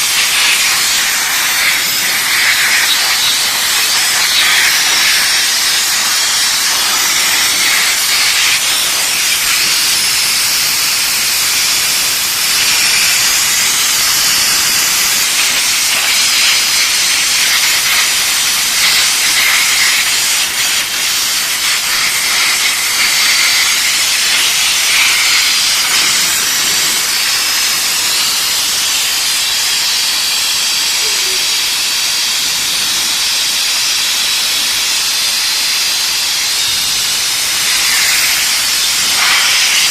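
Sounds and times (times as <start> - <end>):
steam jet hissing: 0.0 - 39.9.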